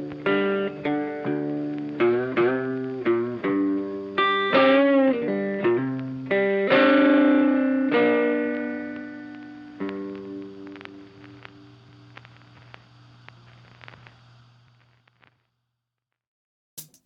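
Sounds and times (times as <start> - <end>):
funky electric guitar music: 0.0 - 10.7.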